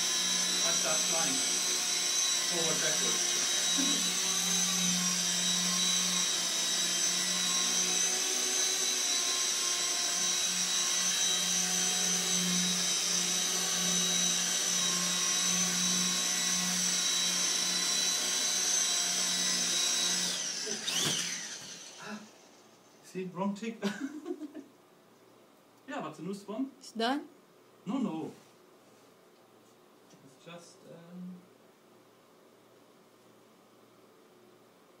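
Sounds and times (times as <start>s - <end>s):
rc helicopter rotor whine: 0.0s - 23.0s.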